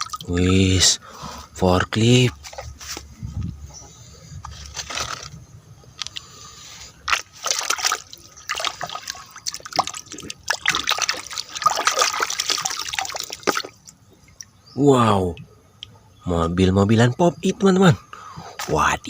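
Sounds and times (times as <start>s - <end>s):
water splashing on plastic toy: 0.0s - 0.5s, 7.1s - 14.0s.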